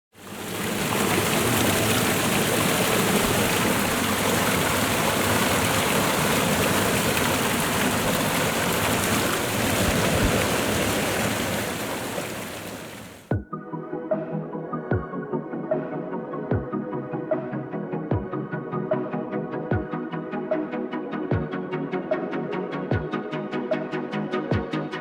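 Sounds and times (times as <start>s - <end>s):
waterfall rushing: 0.2s - 13.3s.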